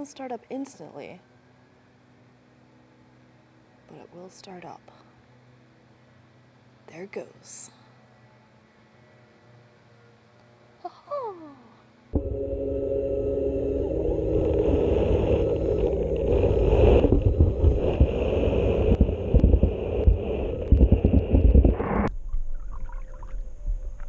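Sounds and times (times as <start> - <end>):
pool cleaner motor whine: 1.0 - 4.1, 5.2 - 6.8, 7.9 - 10.8, 11.9 - 20.5
low churning rumble: 12.1 - 24.0.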